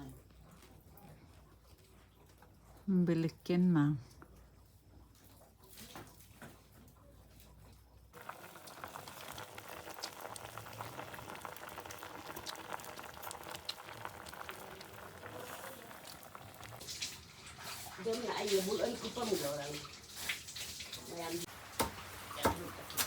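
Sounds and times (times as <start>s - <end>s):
bubbling crackling water: 8.1s - 23.0s.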